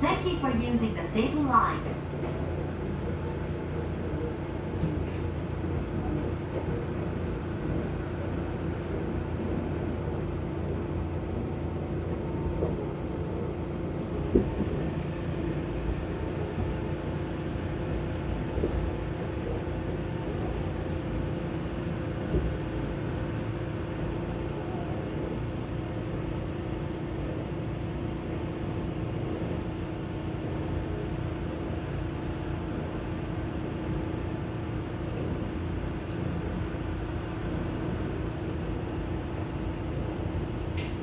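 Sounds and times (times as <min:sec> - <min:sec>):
constant hum: 0:00.0 - 0:29.6
train wheels rumbling on rail: 0:00.0 - 0:41.0.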